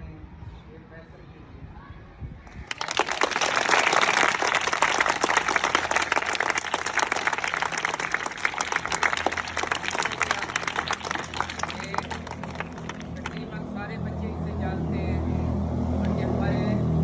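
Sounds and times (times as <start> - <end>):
children applauding: 2.6 - 13.5.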